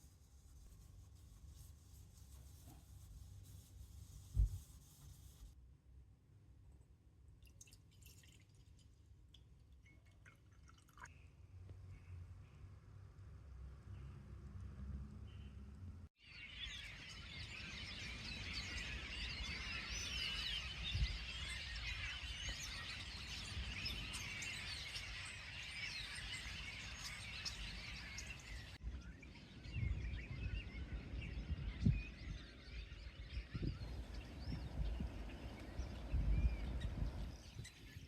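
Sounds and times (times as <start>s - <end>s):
birds chirping: 15.2s - 38.0s.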